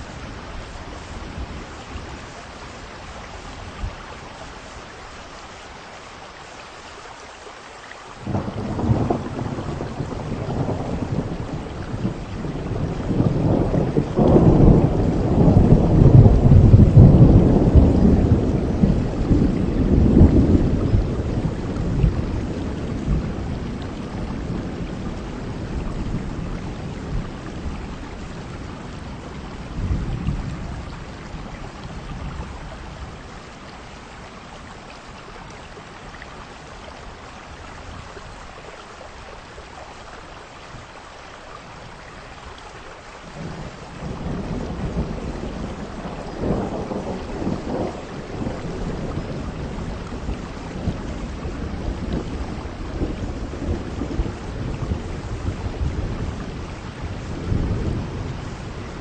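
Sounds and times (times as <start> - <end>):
heavy rain: 0.0 - 59.0
thunder rumbling: 8.2 - 35.1, 43.3 - 59.0.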